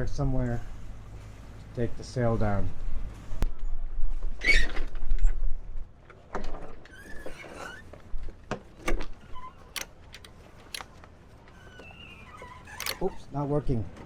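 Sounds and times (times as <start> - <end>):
rasping squeak: 6.9 - 8.0, 11.5 - 13.3
sharp clicks and knocks: 9.7 - 11.1, 12.8 - 13.1
deck gear squealing: 11.4 - 13.4.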